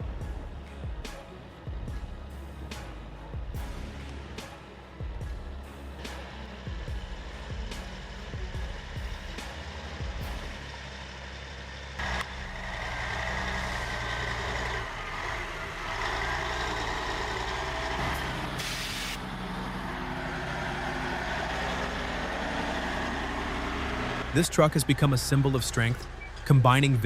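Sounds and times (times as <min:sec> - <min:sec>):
heavy truck engine running: 0:00.0 - 0:27.0
air release hiss: 0:18.6 - 0:19.2.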